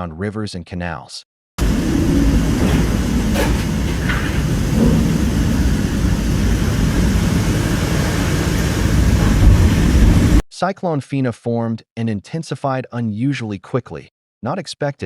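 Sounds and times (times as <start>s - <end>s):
heavy rain: 1.6s - 10.4s
strong wind: 1.6s - 10.4s
wind buffeting microphone: 1.6s - 10.4s.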